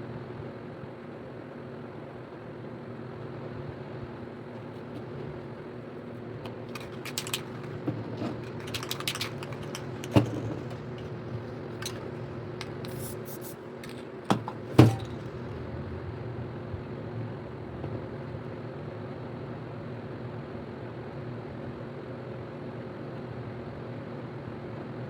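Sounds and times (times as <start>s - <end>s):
hard objects clicking: 6.4s - 15.4s.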